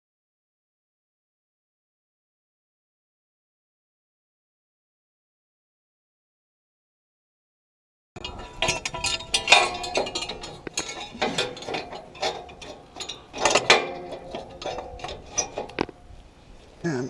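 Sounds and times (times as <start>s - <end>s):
metallic clinks and clanks: 8.2s - 16.2s.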